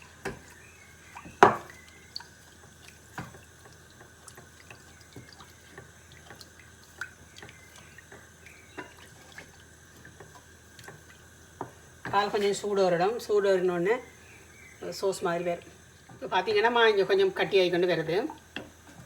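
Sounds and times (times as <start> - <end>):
spoon tapping a pan: 1.3 - 1.8, 7.4 - 9.0.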